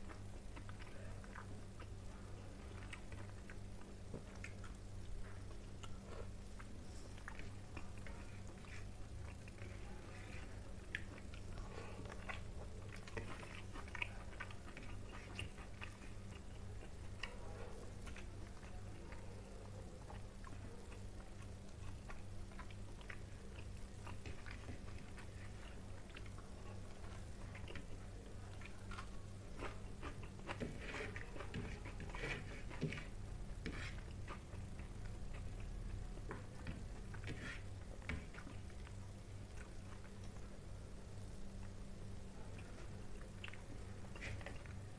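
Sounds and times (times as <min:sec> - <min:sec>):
person chewing food: 0:00.0 - 0:44.9
steady low hum: 0:00.0 - 0:44.9
fingers mixing rice on plate: 0:02.6 - 0:19.3, 0:20.0 - 0:35.6, 0:36.2 - 0:38.9.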